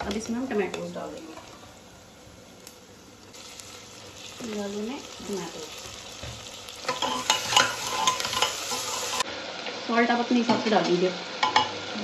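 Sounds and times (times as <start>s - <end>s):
onions sizzling in oil: 0.0s - 12.0s
spoon scraping and clinking: 6.9s - 9.2s.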